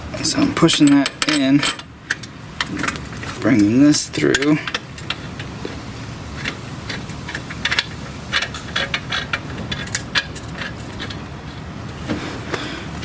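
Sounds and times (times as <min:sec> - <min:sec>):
steady low hum: 0:00.0 - 0:13.0
metallic clinks and rattles of bolts: 0:00.6 - 0:03.0.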